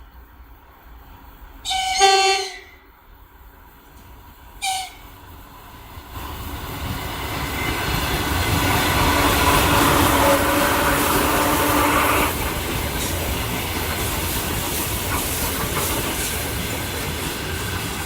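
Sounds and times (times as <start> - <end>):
train horn blasts: 1.6 - 2.9, 4.6 - 5.1, 9.9 - 12.3
electric train running: 4.7 - 18.0.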